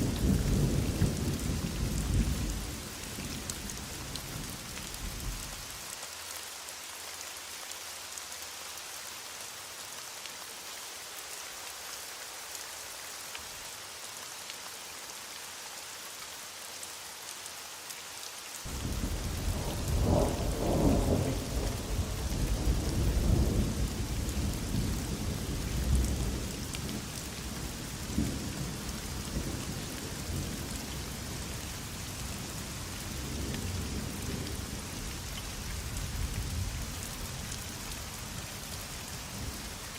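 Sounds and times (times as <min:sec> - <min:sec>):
heavy rain hissing: 0:00.0 - 0:39.9
thunder rumbling: 0:18.7 - 0:26.4.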